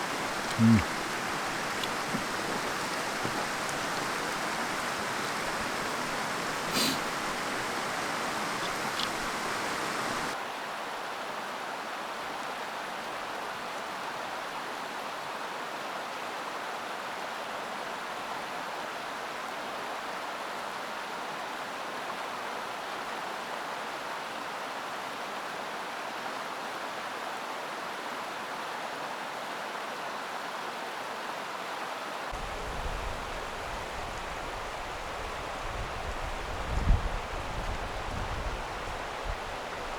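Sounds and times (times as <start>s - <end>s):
stream rushing over rocks: 0.0s - 10.4s, 32.3s - 39.9s
wind rumble on microphone: 32.4s - 39.9s.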